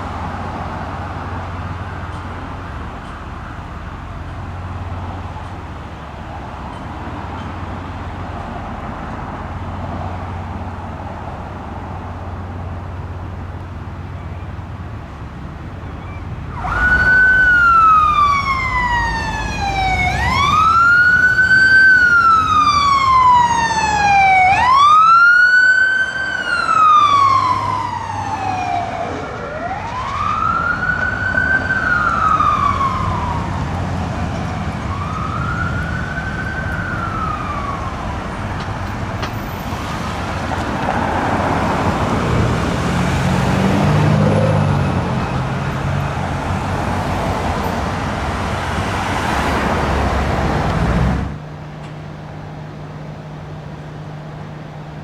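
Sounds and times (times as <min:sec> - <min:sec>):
passing vehicle rumble: 0:00.0 - 0:55.0
vehicle engine and road noise: 0:00.0 - 0:55.0
emergency siren wailing: 0:16.2 - 0:51.6.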